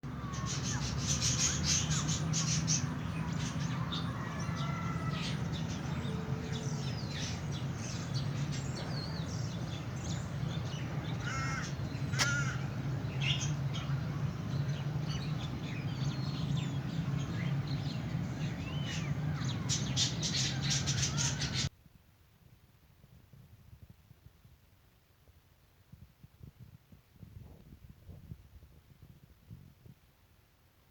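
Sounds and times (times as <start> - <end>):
birds squawking and chirping: 0.1 - 21.7.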